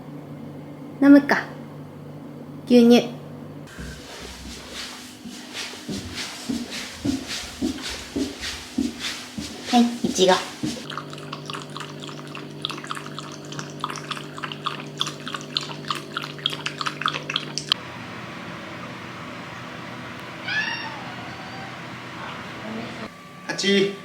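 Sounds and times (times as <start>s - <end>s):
steady low hum: 3.2s - 15.4s
dog lapping milk: 10.1s - 17.8s
cat meowing: 20.4s - 21.8s.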